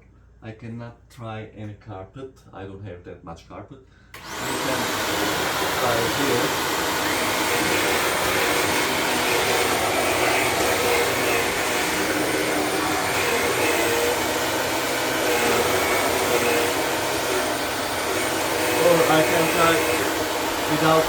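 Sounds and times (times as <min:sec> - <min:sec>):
vacuum cleaner motor whine: 0:04.2 - 0:21.0.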